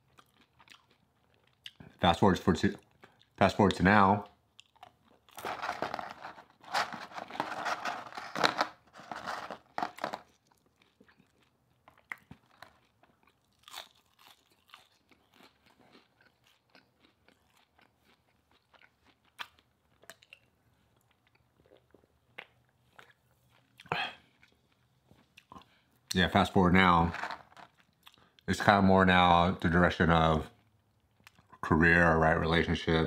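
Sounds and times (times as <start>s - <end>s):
crunchy bites and chewing: 0.0s - 2.0s, 4.5s - 25.7s.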